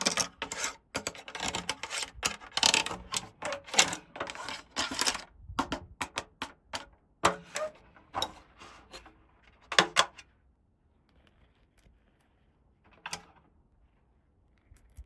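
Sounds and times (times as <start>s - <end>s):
plastic toy pieces clicking: 0.0s - 5.2s.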